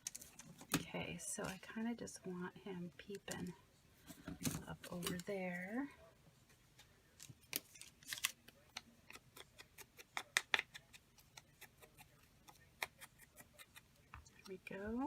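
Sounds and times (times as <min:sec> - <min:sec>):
scissors snipping paper: 0:07.5 - 0:14.5.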